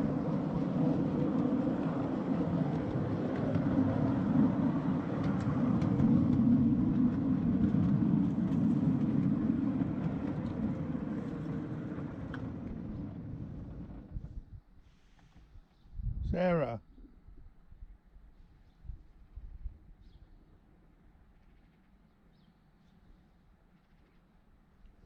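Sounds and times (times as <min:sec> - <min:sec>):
train wheels rumbling on rail: 0:00.0 - 0:14.4.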